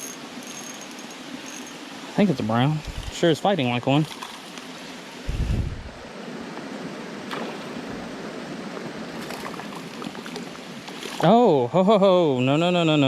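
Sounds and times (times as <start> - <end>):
creek water rushing: 0.1 - 11.6.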